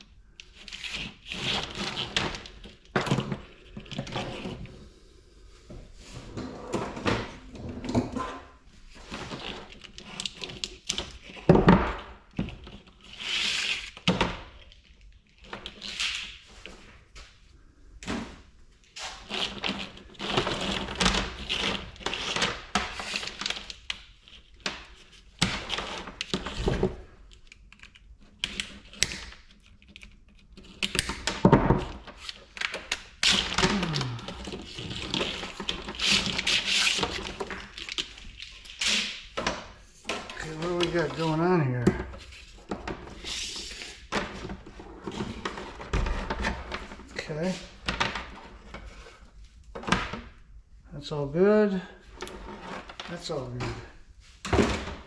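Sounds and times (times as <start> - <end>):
wire insulation scraping and tearing: 0.4 - 2.9, 8.9 - 11.5, 12.3 - 16.4, 19.0 - 39.4, 40.3 - 44.1.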